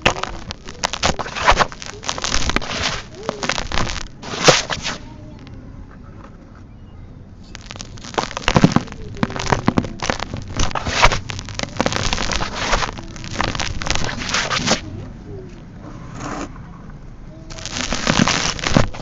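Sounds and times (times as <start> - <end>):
sand-cement chunks crumbling: 0.0 - 5.0, 7.5 - 14.9, 17.5 - 19.0.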